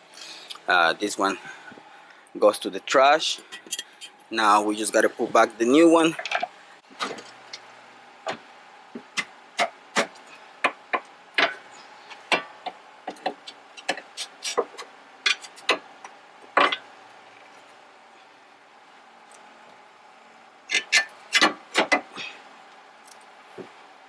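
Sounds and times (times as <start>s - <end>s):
tools and metal parts clicking: 20.7s - 22.0s.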